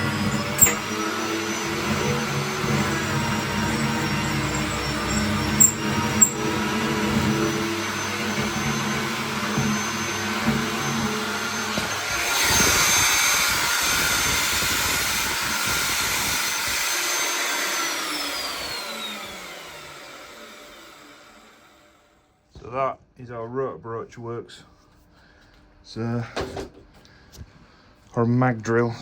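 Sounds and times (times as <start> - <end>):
magnetic drill cutting steel: 0.0 - 21.7
drill motor spinning down whine: 0.0 - 22.2.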